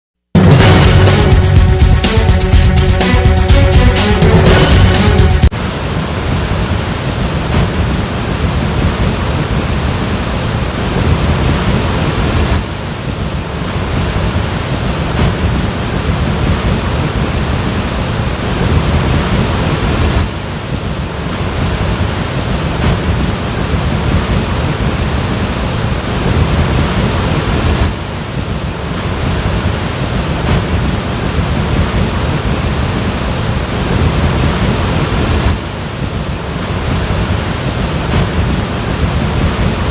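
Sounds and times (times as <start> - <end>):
floodwater rushing: 0.6 - 39.9.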